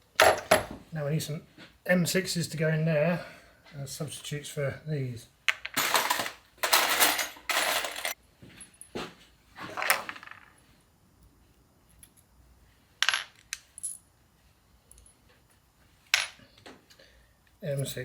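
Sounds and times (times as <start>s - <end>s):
steel bolts clinking in metal container: 5.8s - 8.2s.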